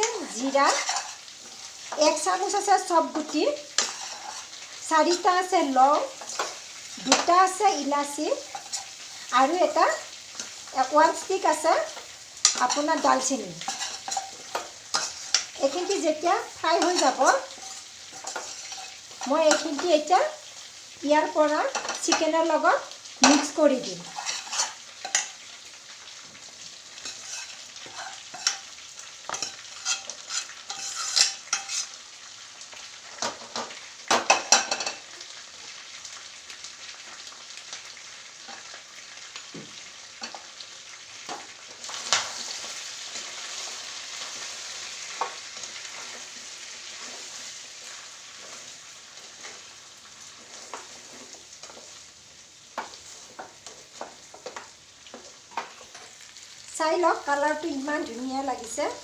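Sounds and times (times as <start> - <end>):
chicken sizzling in a pan: 0.0 - 59.0
utensil scraping and knocking pan: 29.3 - 31.9.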